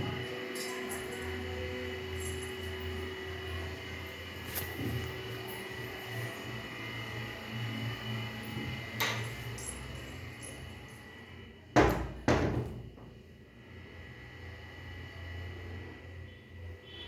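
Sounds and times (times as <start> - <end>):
sharp knocks: 11.8 - 13.1.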